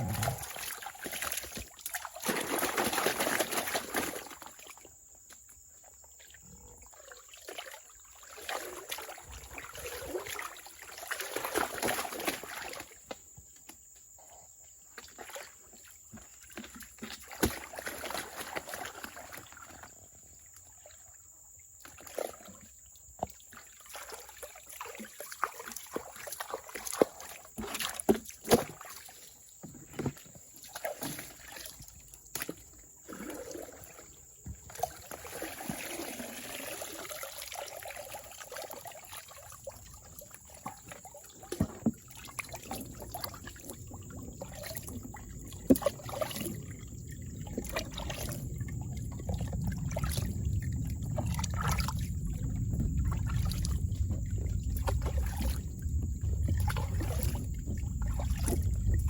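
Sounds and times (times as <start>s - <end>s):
water sloshing and splashing: 0.0s - 14.2s, 14.8s - 59.0s
faint water trickle: 0.0s - 59.0s.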